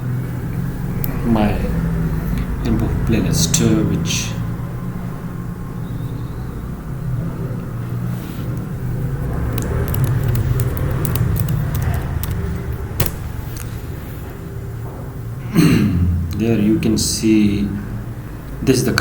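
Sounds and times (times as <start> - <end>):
steady low rumble: 0.0 - 19.0
sharp clicks: 8.5 - 13.8.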